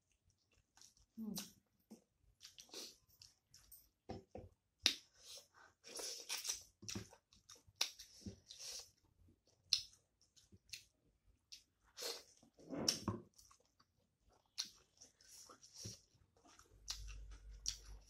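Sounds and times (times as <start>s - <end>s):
wet chewing: 11.5s - 18.0s.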